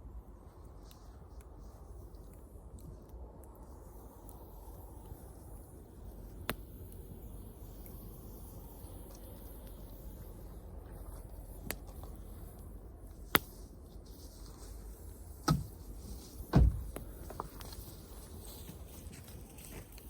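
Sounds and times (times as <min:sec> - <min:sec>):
wood fire crackling: 0:00.4 - 0:20.0
sharp pops: 0:13.2 - 0:13.7.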